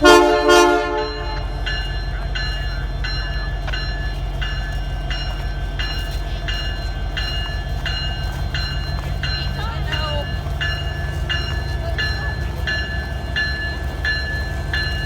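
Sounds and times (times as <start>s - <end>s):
train air horn blast: 0.0s - 1.6s
locomotive engine idling rumble: 0.0s - 15.0s
bell ringing: 0.5s - 15.0s.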